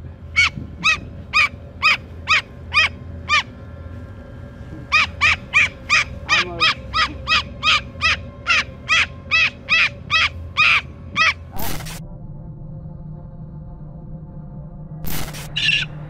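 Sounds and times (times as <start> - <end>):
bird calling in sharp notes: 0.3 - 3.6, 4.8 - 12.0, 15.1 - 16.0.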